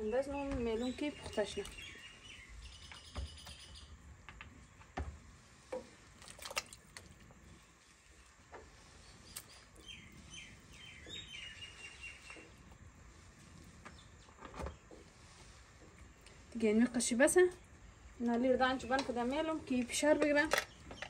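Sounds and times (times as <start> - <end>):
bird chirping: 0.0 - 4.0, 9.0 - 12.7
faint clicks and knocks: 18.2 - 21.0.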